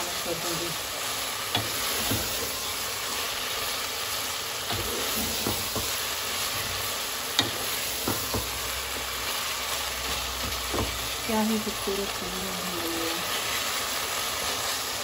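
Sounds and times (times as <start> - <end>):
meat sizzling in a pot: 0.0 - 15.0
spoon knocking against pan: 4.7 - 6.0, 7.4 - 8.6.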